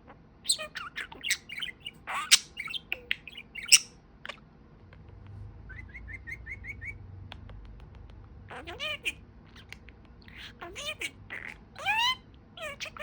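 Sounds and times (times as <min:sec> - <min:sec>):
budgerigar chirping and squawking: 0:00.4 - 0:04.4, 0:08.5 - 0:13.0.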